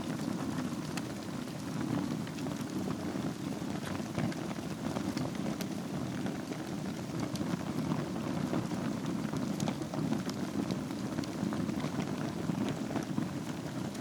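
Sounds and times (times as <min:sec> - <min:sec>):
fire crackles and pops: 0:00.0 - 0:14.0
wood fire burning: 0:00.0 - 0:14.0.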